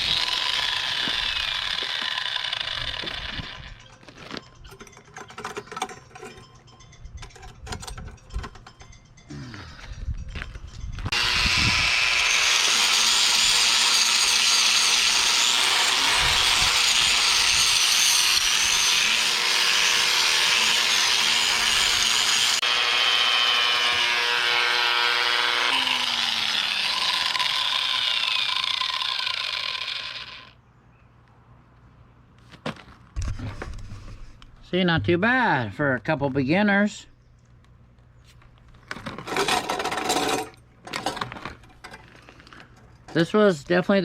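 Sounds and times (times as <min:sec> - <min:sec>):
angle grinder grinding steel: 0:00.0 - 0:09.0, 0:10.9 - 0:30.6, 0:39.3 - 0:41.2.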